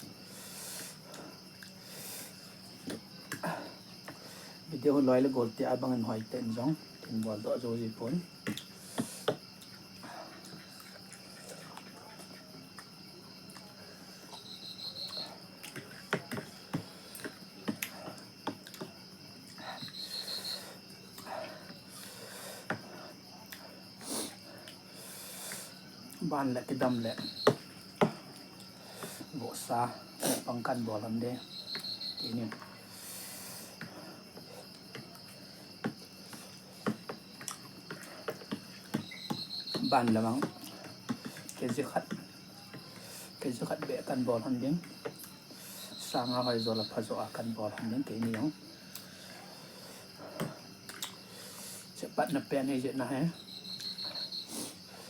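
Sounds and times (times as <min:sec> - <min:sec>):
insects chirping: 0:00.0 - 0:55.0
short insect trills: 0:00.0 - 0:55.0
clicks and smacks of eating: 0:08.4 - 0:20.0, 0:33.9 - 0:43.1, 0:44.8 - 0:45.4, 0:47.7 - 0:49.1, 0:50.3 - 0:51.3
eating clicks and taps: 0:15.6 - 0:19.0.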